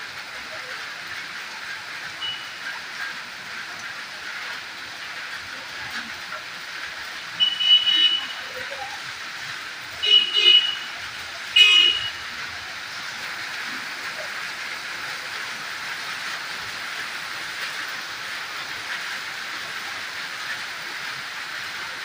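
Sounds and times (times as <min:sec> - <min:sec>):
heavy rain falling: 0:00.0 - 0:22.0
vehicle horn toots: 0:02.2 - 0:02.6, 0:07.4 - 0:08.6, 0:10.0 - 0:12.3.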